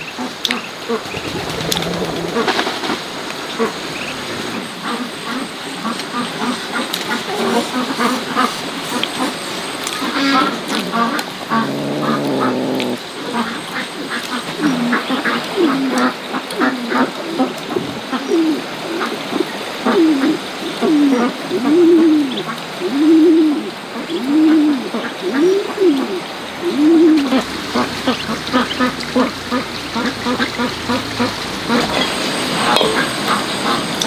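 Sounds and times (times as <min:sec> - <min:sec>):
duck-like animal calls: 0:10.3 - 0:13.0.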